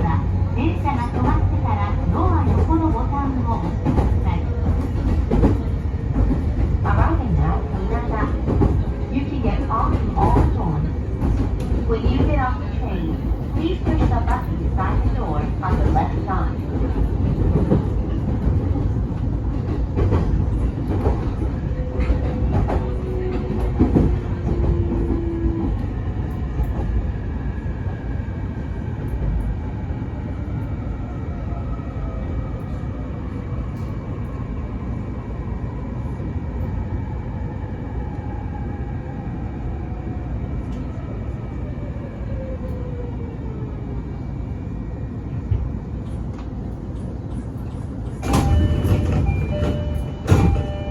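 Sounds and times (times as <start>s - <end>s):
train wheels rumbling on rail: 0.0s - 50.9s
rail joint clicks: 0.1s - 27.1s, 40.6s - 41.0s, 45.4s - 50.9s.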